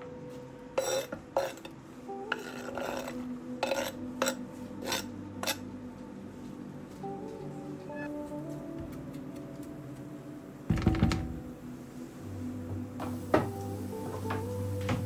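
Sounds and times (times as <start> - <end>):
soft background music: 0.0 - 15.0
scraping of dishes: 0.8 - 5.7.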